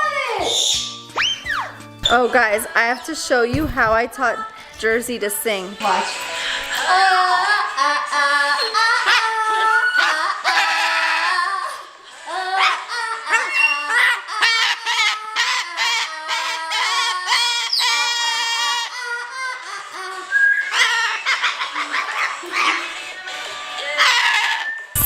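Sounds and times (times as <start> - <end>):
parrot squawking and whistling: 0.4 - 3.1, 13.4 - 18.9, 20.3 - 21.6, 24.0 - 25.0.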